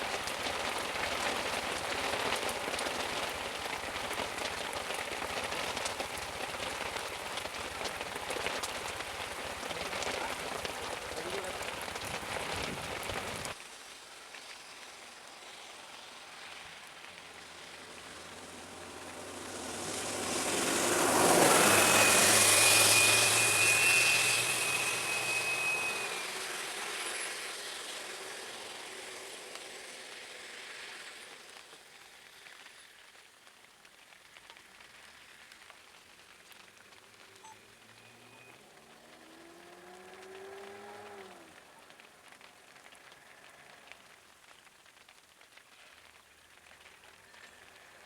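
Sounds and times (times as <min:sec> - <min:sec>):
vehicle passing on wet road: 0:00.0 - 0:48.0
thin high whine: 0:18.1 - 0:30.2.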